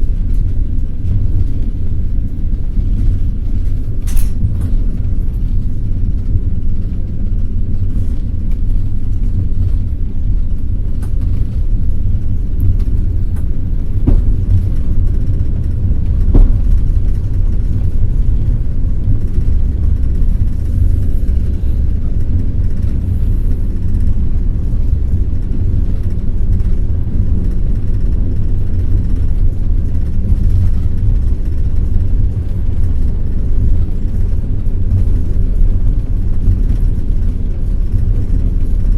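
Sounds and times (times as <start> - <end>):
train rumbling on rails: 0.0 - 38.9.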